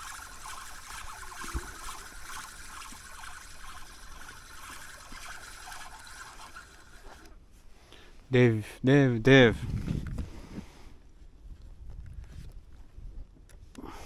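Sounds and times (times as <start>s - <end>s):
underwater crackle: 0.0s - 7.3s.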